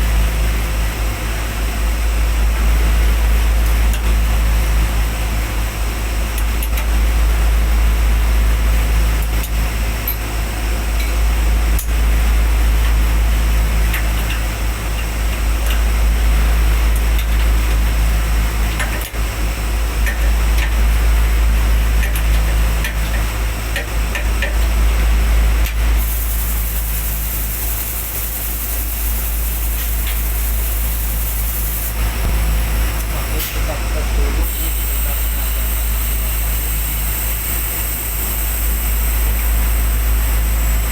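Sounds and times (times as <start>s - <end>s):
machinery drone with low hum: 0.0s - 40.9s
hiss: 26.0s - 33.7s, 34.4s - 40.9s.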